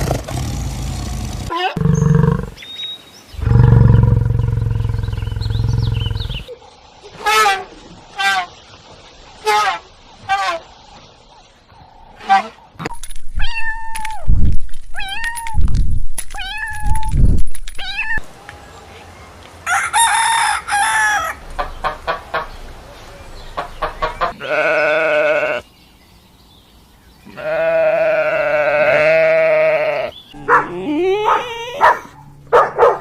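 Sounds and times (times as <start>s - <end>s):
patter of clicks: 12.8s - 18.0s
farm animal calls: 23.5s - 25.6s, 27.2s - 33.0s.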